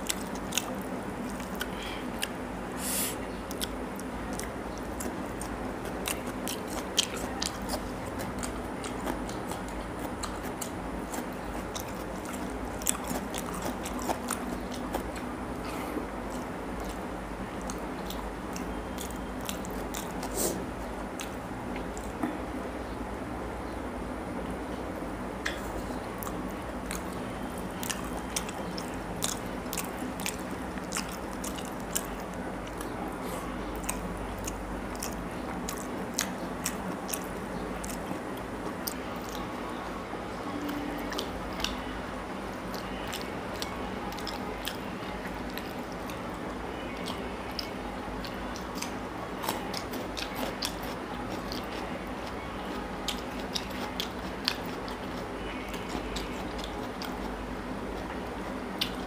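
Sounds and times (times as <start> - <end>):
wet chewing: 0.0 - 22.2, 25.4 - 39.6, 40.6 - 59.0
lip smacks: 58.7 - 59.0.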